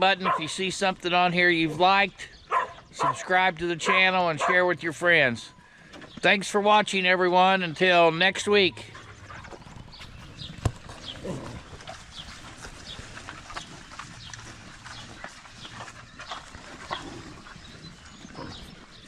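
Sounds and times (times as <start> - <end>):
farm animals calling: 0.0 - 19.0.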